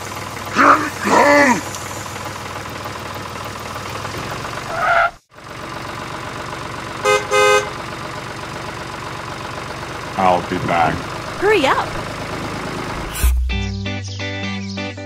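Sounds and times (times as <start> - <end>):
low engine drone: 9.5 - 15.0.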